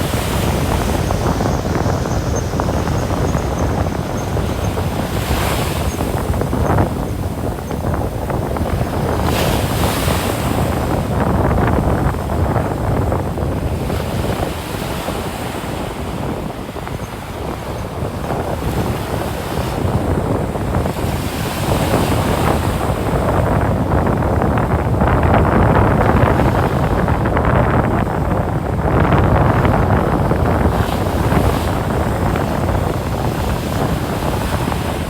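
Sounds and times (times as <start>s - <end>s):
ocean surf washing ashore: 0.0s - 35.0s
wind rumbling on microphone: 0.0s - 35.0s.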